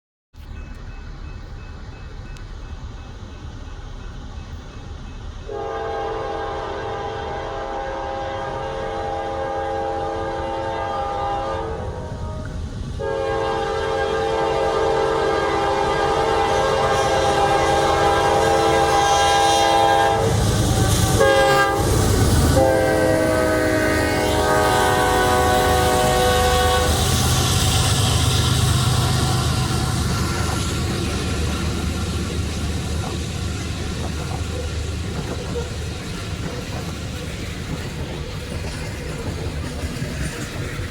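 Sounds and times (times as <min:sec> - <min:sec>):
locomotive rushing past: 0:00.4 - 0:40.9
train cars clacking over rails: 0:00.4 - 0:40.9
locomotive air horn: 0:05.5 - 0:31.8.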